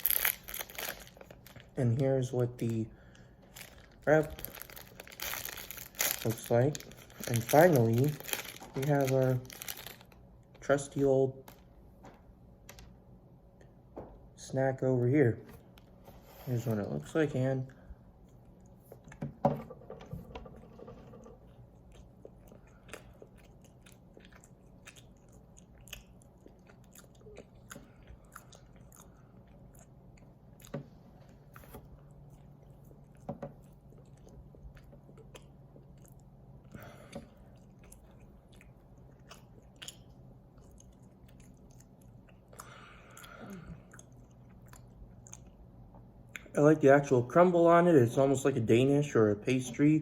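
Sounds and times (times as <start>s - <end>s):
faint chewing: 21.2s - 46.6s.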